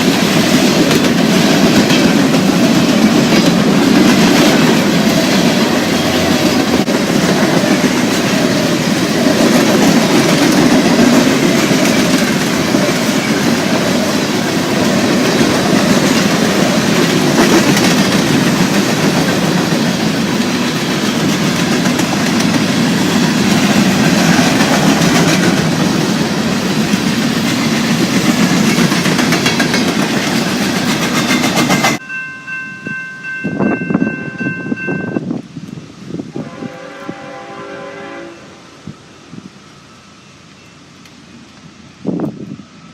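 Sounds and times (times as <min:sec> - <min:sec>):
train wheels clattering: 0:00.0 - 0:32.0
train horn chord: 0:36.3 - 0:38.7.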